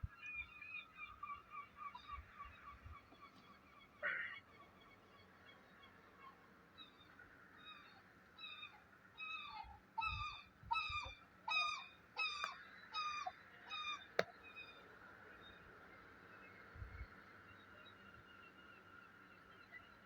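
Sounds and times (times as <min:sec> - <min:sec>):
bird honking: 0:00.4 - 0:14.8.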